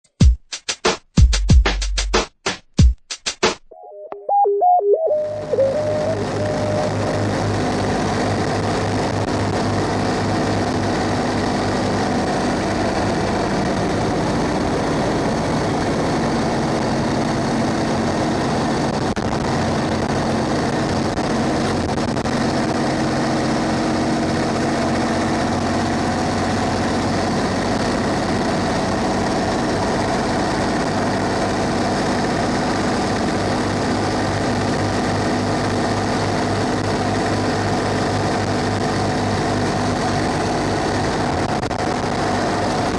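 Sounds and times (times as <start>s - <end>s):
diesel bus engine running: 5.3s - 42.9s.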